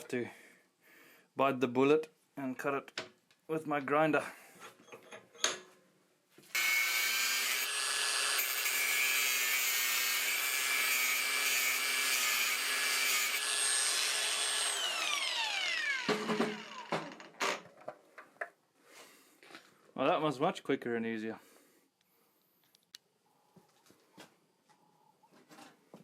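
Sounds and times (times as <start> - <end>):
angle grinder cutting metal: 6.5 - 17.6.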